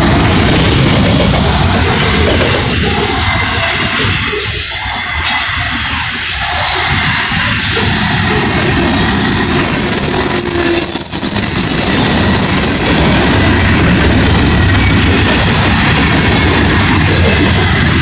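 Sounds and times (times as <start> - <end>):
train wheels rumbling on rail: 0.0 - 18.0
high-pitched wheel squeal: 3.2 - 16.5.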